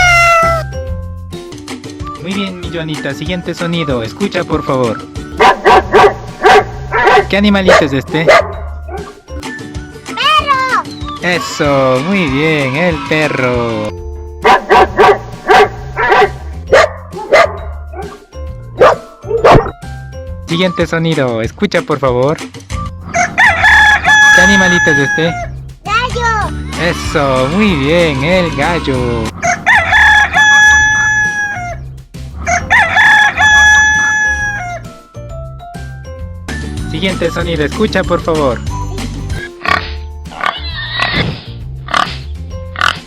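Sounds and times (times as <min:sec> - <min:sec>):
background music: 0:00.0 - 0:43.0
dog barking: 0:05.4 - 0:09.1, 0:14.4 - 0:18.2, 0:18.8 - 0:19.8
rooster crowing: 0:23.1 - 0:25.5, 0:29.4 - 0:31.8, 0:32.4 - 0:34.9.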